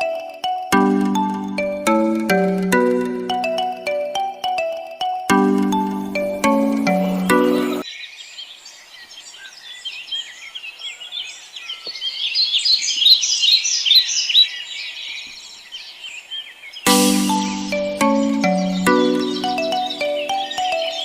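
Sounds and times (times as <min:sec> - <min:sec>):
marimba-like children's jingle: 0:00.0 - 0:07.8, 0:16.9 - 0:21.0
small birds chirping: 0:05.6 - 0:21.0.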